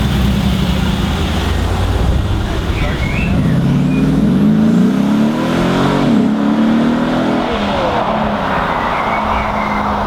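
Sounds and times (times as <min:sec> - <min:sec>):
car engine revving: 0:00.0 - 0:10.0
rushing noise: 0:06.6 - 0:10.0.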